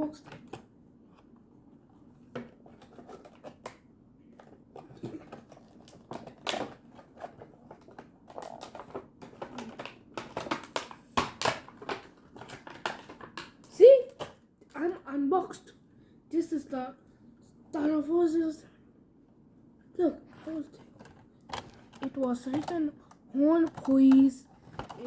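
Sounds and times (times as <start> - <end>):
packaging rustling and clicking: 2.3 - 14.4, 20.8 - 25.0.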